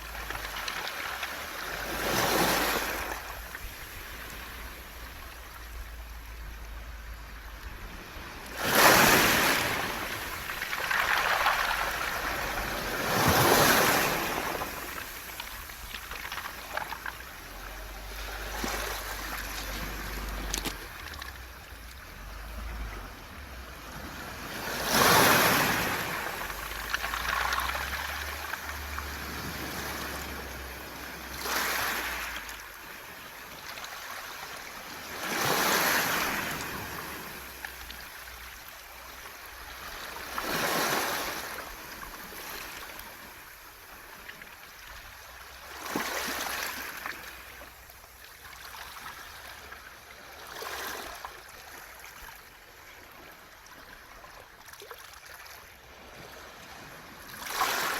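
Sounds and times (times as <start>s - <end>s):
pebbles rolling in surf: 0.0s - 4.2s, 8.6s - 21.9s, 24.6s - 30.2s
waves breaking on pebble beach: 0.0s - 6.0s, 7.4s - 47.6s, 56.2s - 57.9s.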